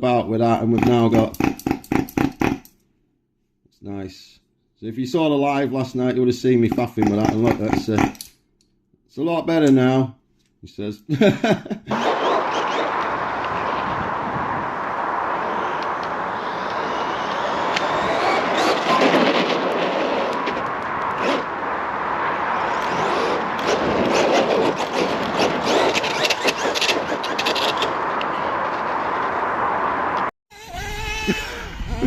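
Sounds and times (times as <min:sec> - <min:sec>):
tyres and chassis scraping: 0:11.9 - 0:30.3
toy truck motor running: 0:16.4 - 0:20.3, 0:22.7 - 0:28.0.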